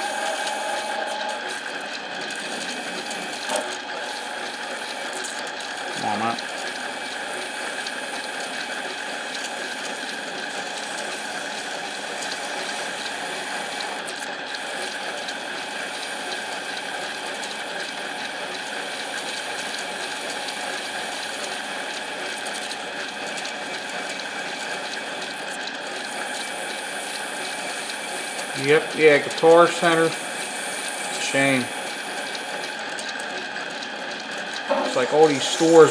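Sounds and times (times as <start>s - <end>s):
lathe motor whine with gear chatter: 0.0s - 35.9s.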